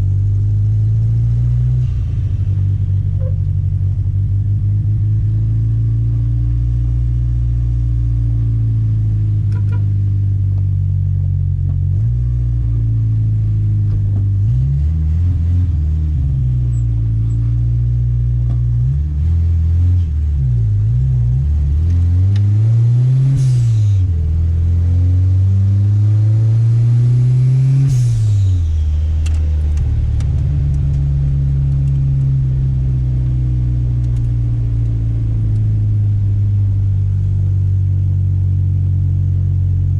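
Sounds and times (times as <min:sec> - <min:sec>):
turbocharged car engine revving: 0:11.9 - 0:39.9.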